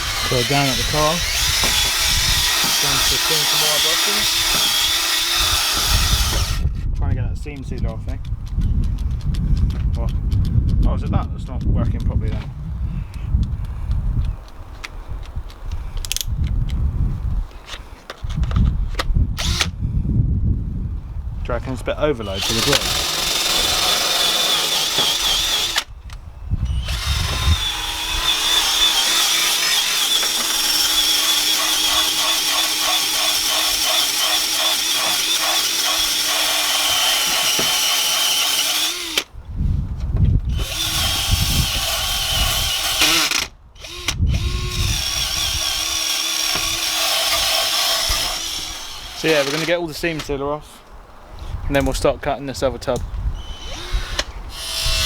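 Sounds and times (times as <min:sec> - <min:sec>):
power drill whining: 0:00.0 - 0:06.6, 0:19.4 - 0:19.7, 0:22.2 - 0:25.9, 0:26.6 - 0:39.3, 0:40.5 - 0:49.8, 0:53.4 - 0:55.0.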